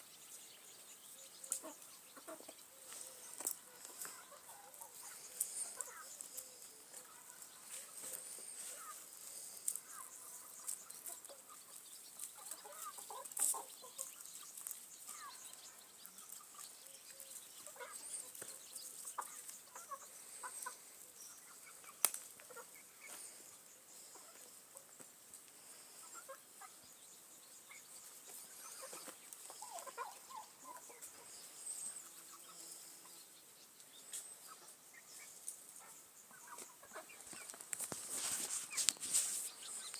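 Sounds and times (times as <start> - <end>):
young chickens clucking and peeping: 0.0 - 39.9.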